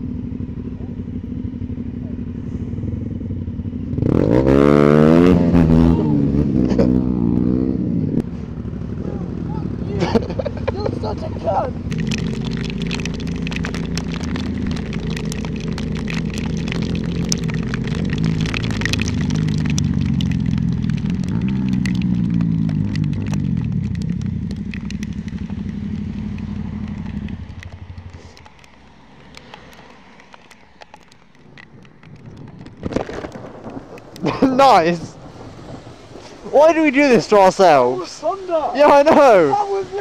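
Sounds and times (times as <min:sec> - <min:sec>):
motorcycle engine slowing: 0:00.0 - 0:38.0
scattered ticking: 0:11.9 - 0:35.4
heavy rain on camera: 0:11.9 - 0:40.0.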